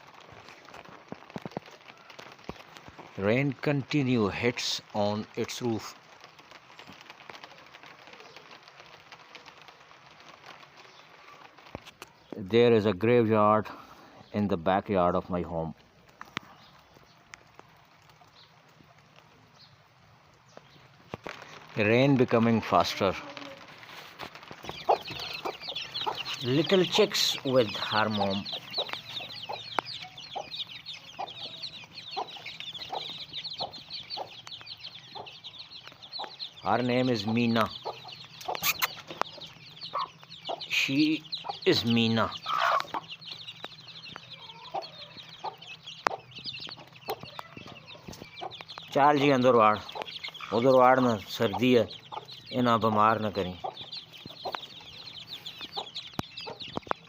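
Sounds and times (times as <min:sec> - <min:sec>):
chicks peeping: 0:00.0 - 0:57.0
rain pattering on wooden roof: 0:00.0 - 0:57.0
hen clucking: 0:22.4 - 0:57.0.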